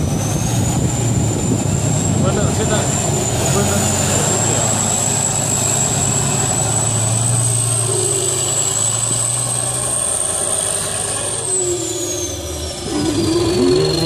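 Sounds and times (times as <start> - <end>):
truck engine drone: 0.0 - 14.0.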